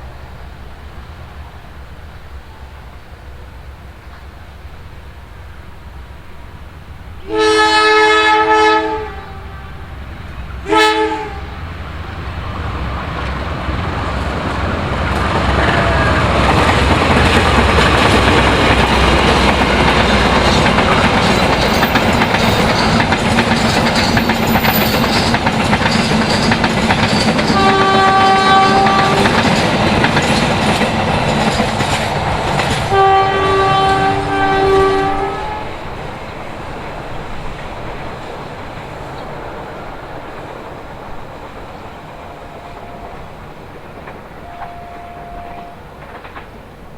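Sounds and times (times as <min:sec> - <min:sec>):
train wheels rumbling on rails: 0:00.0 - 0:46.9
locomotive air horn: 0:07.2 - 0:10.0, 0:10.6 - 0:11.7, 0:15.3 - 0:16.7, 0:27.5 - 0:29.4, 0:32.9 - 0:35.8, 0:44.4 - 0:45.8.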